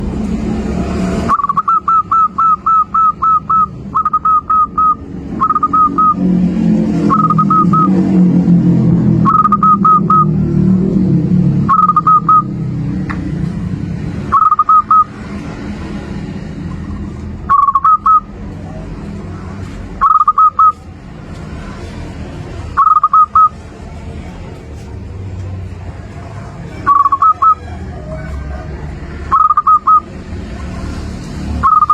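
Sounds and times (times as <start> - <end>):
dove cooing: 1.3 - 6.2, 7.1 - 8.0, 20.0 - 20.8, 22.8 - 23.5, 26.8 - 30.1.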